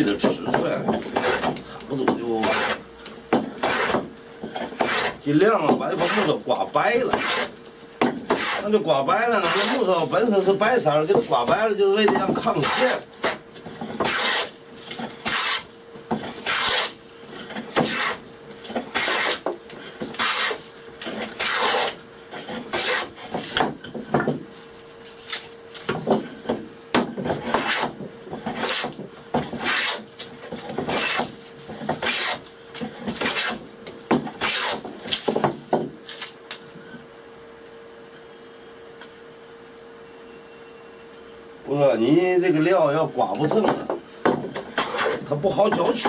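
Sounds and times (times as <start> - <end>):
hand tool rasping wood: 0.0 - 24.5, 25.9 - 35.5, 43.4 - 46.0
faint steady hum: 0.0 - 46.0.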